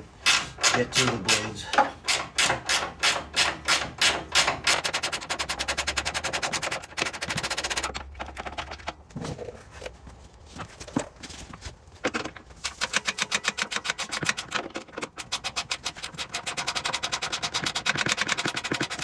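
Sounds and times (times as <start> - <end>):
ratchet wrench clicking: 0.2 - 7.9, 12.7 - 19.0.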